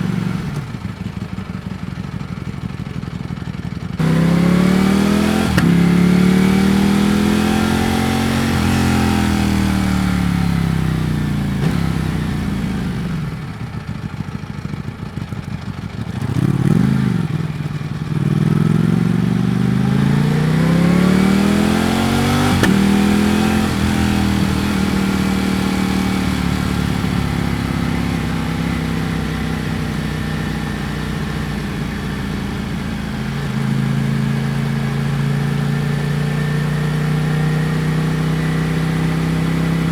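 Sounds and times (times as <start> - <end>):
motorcycle engine: 0.0 - 39.9
throttle blip: 22.2 - 24.8.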